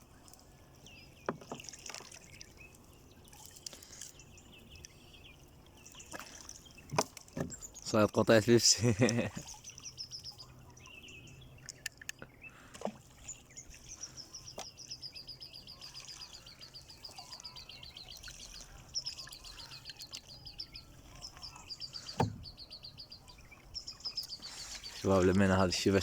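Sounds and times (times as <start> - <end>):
birds twittering: 0.0 - 26.0
faint knocks: 22.0 - 22.6
dull thump: 22.1 - 22.6.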